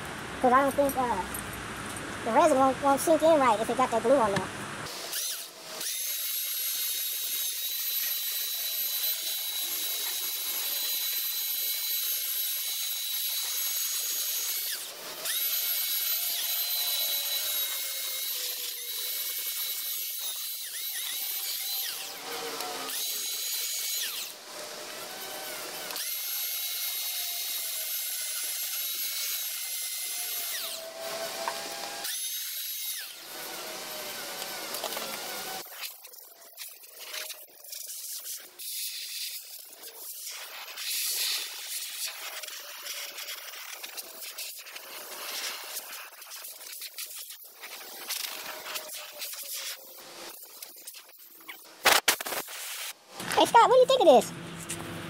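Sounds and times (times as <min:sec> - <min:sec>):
electric grinder whining: 0:04.8 - 0:50.7.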